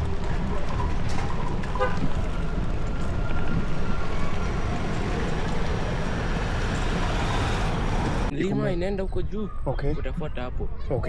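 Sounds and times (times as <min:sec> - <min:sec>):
road traffic noise: 0:00.0 - 0:08.8
wind rumbling on microphone: 0:00.0 - 0:11.0.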